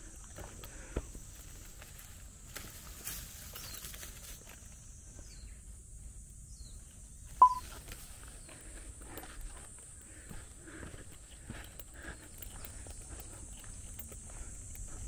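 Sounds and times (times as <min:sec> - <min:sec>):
rustling footsteps in undergrowth: 0:00.3 - 0:15.0
faint bird chirps: 0:07.4 - 0:07.8.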